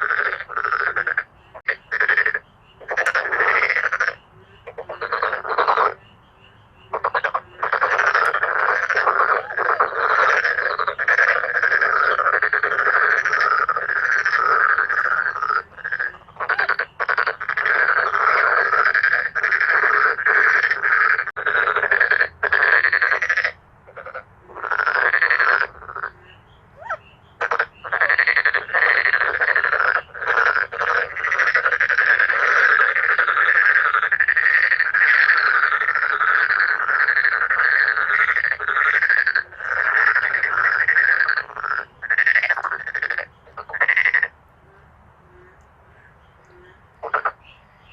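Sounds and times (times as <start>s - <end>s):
frogs croaking chorus: 0.0s - 47.9s.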